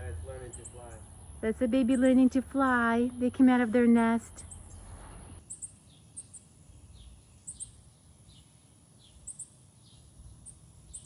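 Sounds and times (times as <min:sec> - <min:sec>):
high bird chirps: 0:00.4 - 0:01.2, 0:04.0 - 0:11.0.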